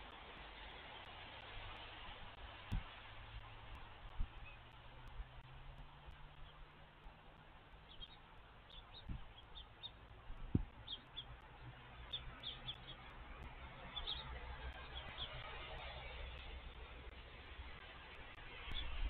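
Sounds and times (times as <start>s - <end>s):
small birds chirping: 0.6s - 19.0s
dull thumps: 9.0s - 9.3s, 10.4s - 10.8s.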